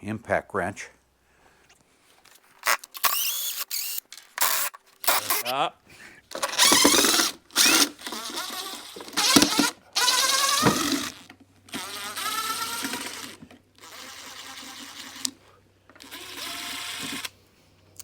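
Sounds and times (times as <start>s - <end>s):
impact wrench bursts: 2.6s - 5.5s, 6.3s - 17.4s.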